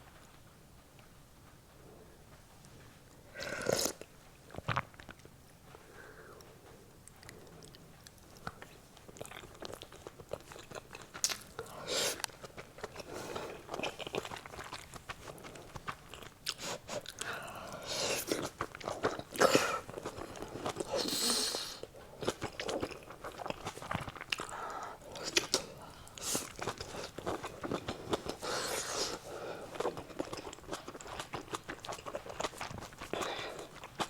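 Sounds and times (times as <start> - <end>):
crunchy chewing: 1.7 - 34.0.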